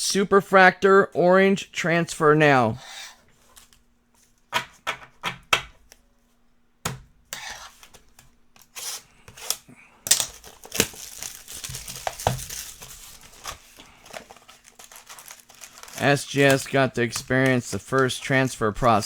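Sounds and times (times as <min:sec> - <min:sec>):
wrapping crinkling: 0:08.6 - 0:19.0
wrapping snapping: 0:08.6 - 0:19.0.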